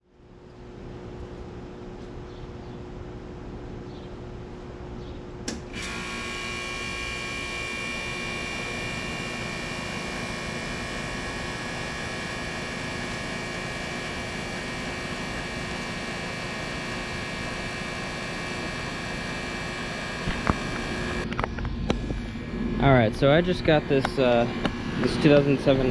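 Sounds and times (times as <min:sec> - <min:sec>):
heat pump humming and whining: 0:00.0 - 0:25.9
heat pump switch click: 0:05.4 - 0:06.0.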